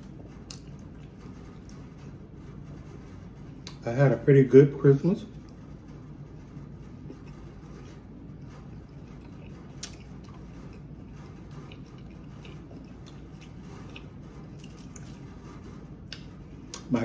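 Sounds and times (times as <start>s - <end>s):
person chewing: 0.0s - 1.7s, 6.7s - 15.3s, 16.1s - 16.9s
low hum: 0.0s - 17.0s.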